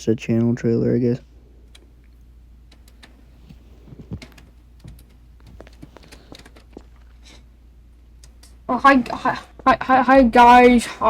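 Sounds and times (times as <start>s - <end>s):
faint steady hum: 0.0s - 11.0s
computer keyboard key taps: 2.7s - 3.2s, 3.9s - 6.7s.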